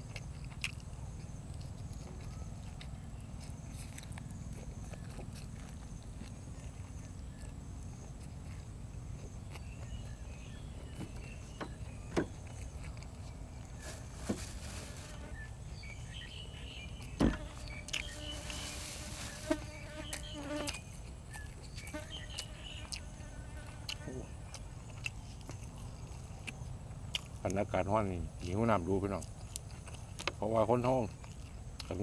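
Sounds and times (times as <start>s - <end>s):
chewing and crunching: 0.0s - 32.0s.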